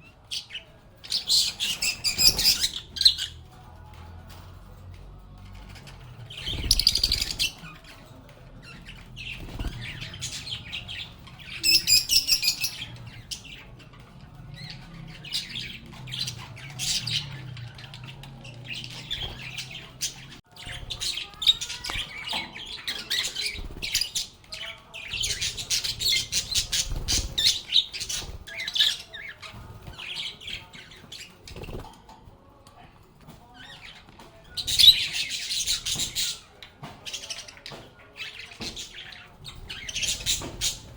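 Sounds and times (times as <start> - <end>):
lovebirds chirping and squawking: 0.0 - 40.9.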